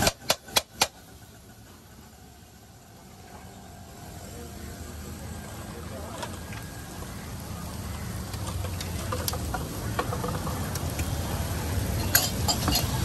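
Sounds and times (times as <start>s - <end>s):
low street hum: 0.0s - 13.0s
food sizzling on a griddle: 6.8s - 13.0s.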